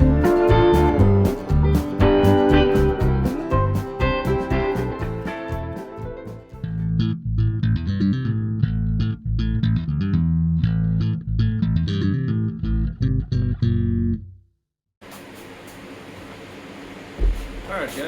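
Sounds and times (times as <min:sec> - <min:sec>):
electric bass guitar plucking: 0:00.0 - 0:14.5
fan hum: 0:15.0 - 0:18.0.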